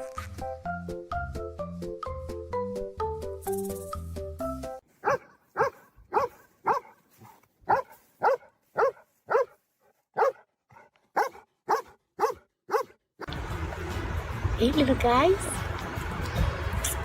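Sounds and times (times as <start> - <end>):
dog barking: 5.0 - 13.0.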